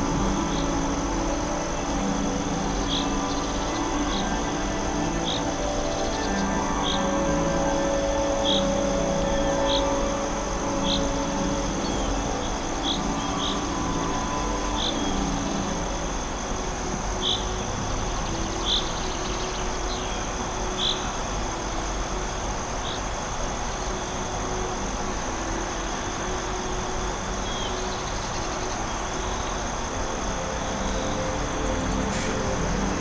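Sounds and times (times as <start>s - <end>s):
background hiss: 0.0s - 33.0s
high insect drone: 0.0s - 33.0s.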